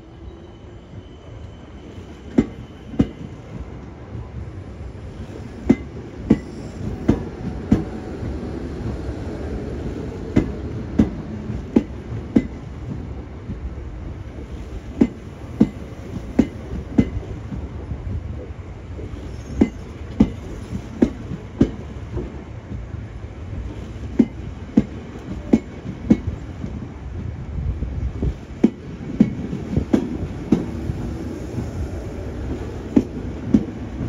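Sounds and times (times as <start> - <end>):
train wheels clacking over rail joint: 5.0 - 9.0, 10.2 - 13.7, 14.5 - 17.7, 19.0 - 22.9, 23.6 - 26.8, 28.2 - 30.8.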